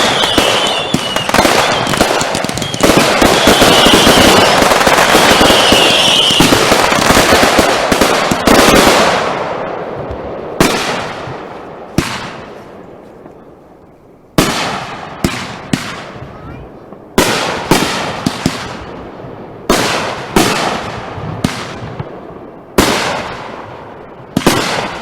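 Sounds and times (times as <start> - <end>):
firework bangs: 0.0 - 13.3, 14.4 - 25.0
fireworks crackling barrage: 0.0 - 25.0.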